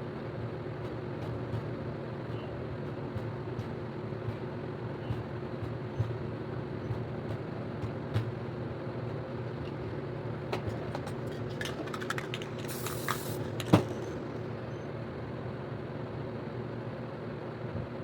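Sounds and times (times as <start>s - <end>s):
clicks of can and tool handling: 10.6s - 14.3s
spray can hissing: 11.2s - 14.3s.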